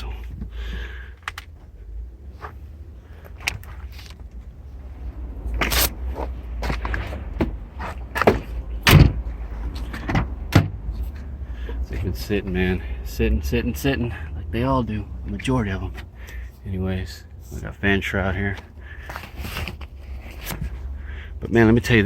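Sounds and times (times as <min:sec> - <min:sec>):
car doors and panels clunking: 0:05.5 - 0:11.0.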